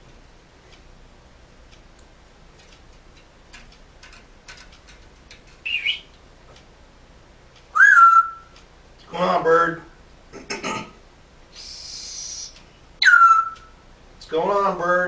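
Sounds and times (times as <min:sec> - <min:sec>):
soft bird clicks: 0:01.7 - 0:06.7
bird whistle: 0:05.6 - 0:06.1, 0:07.7 - 0:08.6, 0:11.6 - 0:13.8.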